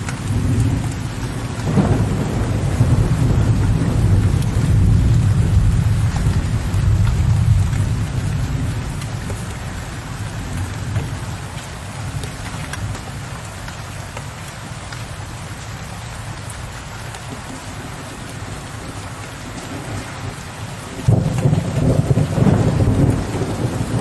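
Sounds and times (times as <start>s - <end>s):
raindrops tapping on a ledge: 0.0s - 24.0s
steady rain: 0.0s - 24.0s
distant thunder rumble: 0.1s - 11.4s, 19.6s - 24.0s.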